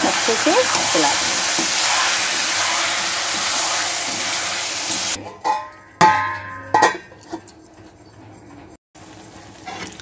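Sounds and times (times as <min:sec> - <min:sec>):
food sizzling in hot oil: 0:00.0 - 0:05.2
steel cookware clanking: 0:05.2 - 0:08.7.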